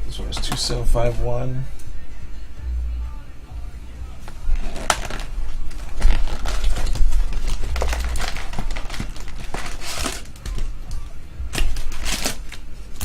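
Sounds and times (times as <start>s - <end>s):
cards rustling and clicking: 4.2s - 13.0s
pack wrappers crinkling: 4.2s - 13.0s.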